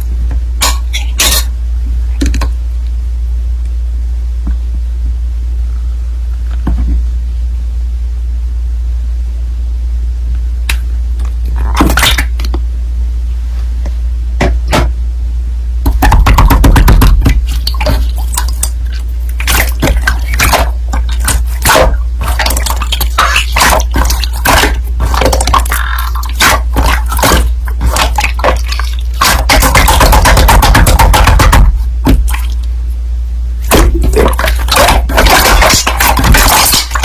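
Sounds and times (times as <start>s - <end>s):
steady low hum: 0.0s - 37.0s
slime squelching and crackling: 16.0s - 32.7s, 33.6s - 37.0s.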